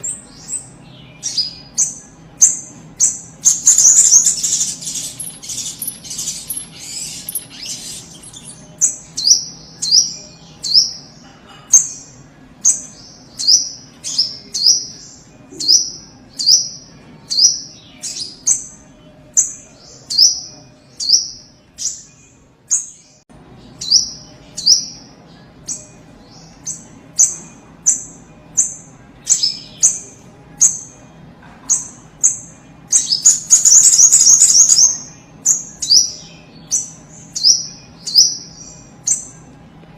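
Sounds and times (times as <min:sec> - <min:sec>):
high chattering: 0:00.0 - 0:16.8.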